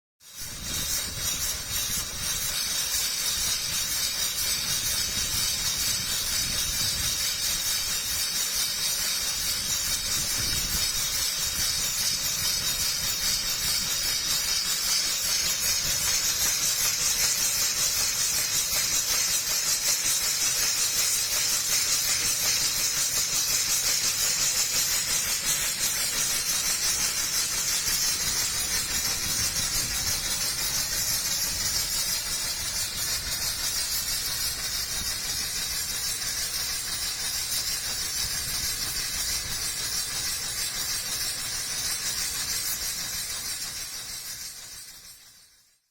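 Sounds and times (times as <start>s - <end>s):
steam engine hissing steam: 0.2s - 45.6s.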